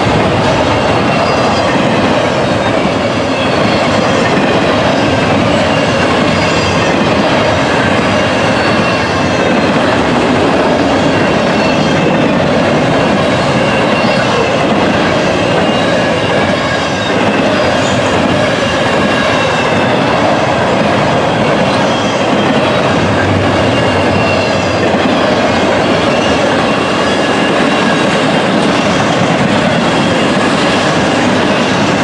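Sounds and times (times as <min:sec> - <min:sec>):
freight train wheels rumbling: 0:00.0 - 0:32.0
faint high squealing: 0:10.9 - 0:31.9.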